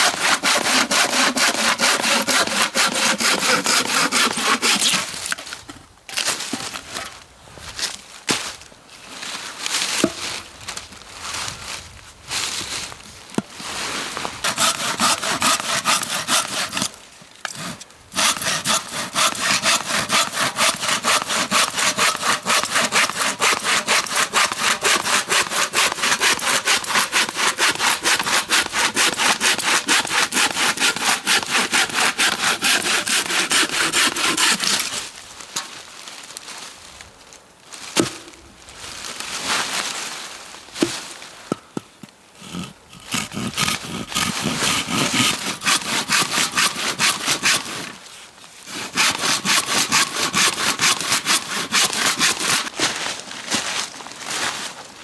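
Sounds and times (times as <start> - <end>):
hand saw cutting wood: 0.0 - 5.4, 14.4 - 35.1, 42.4 - 48.1, 48.7 - 53.0.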